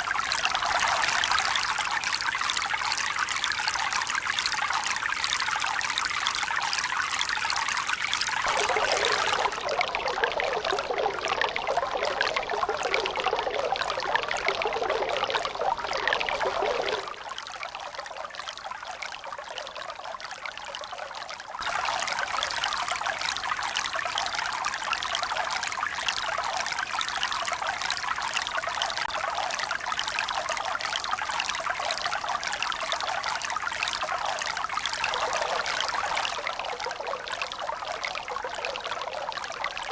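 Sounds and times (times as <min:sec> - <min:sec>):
running water splashing: 0:08.4 - 0:09.8.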